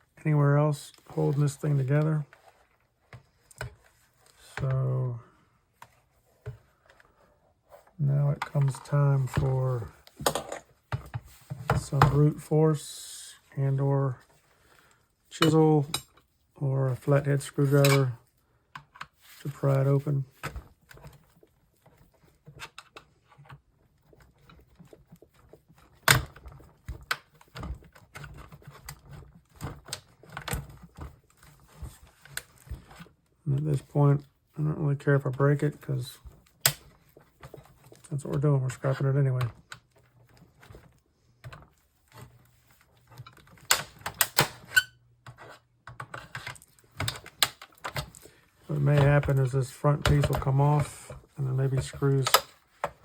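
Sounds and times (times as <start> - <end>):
plastic clicks and scrapes: 17.0 - 34.4, 35.2 - 53.0
plastic cracks and snaps: 36.6 - 36.9, 43.2 - 44.7
plastic housing being pried apart: 43.2 - 44.8.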